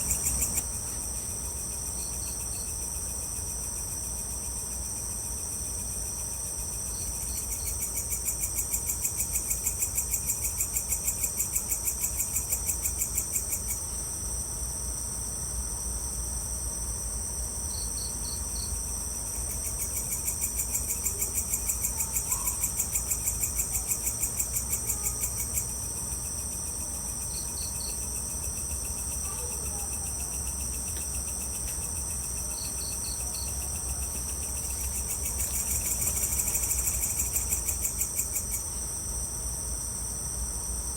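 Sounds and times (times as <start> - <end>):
rapid pulsing insect trill: 0.0 - 40.9
insects shrilling: 27.2 - 38.8.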